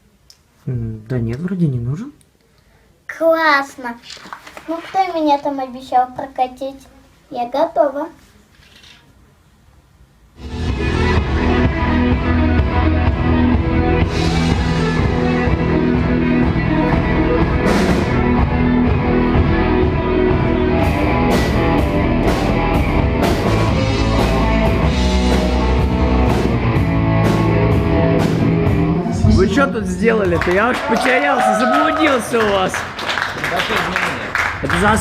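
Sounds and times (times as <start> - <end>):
rock music: 10.4 - 30.9.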